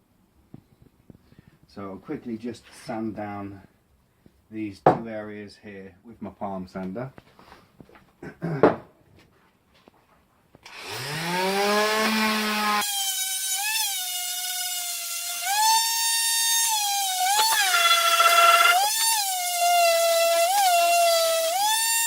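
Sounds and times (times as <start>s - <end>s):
palm sander sanding wood: 16.8s - 22.0s.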